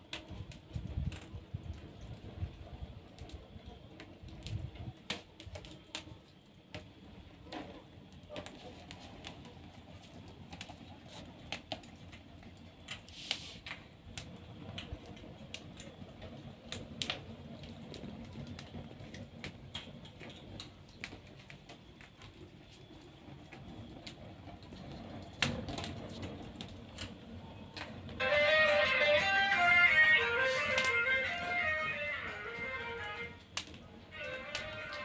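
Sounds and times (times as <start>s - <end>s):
wood fire crackling and popping: 0.0s - 35.0s
guitar music: 28.2s - 33.4s.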